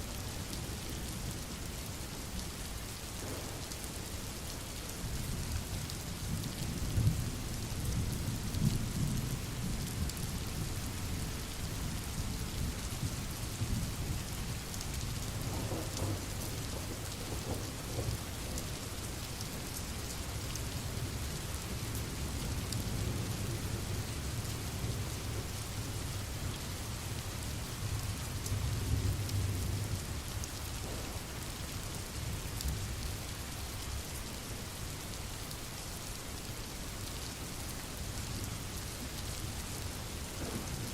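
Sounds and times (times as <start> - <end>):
steady rain falling: 0.0 - 40.9
low rolling thunder: 3.2 - 3.6, 15.4 - 18.8, 30.7 - 33.0, 40.3 - 40.9.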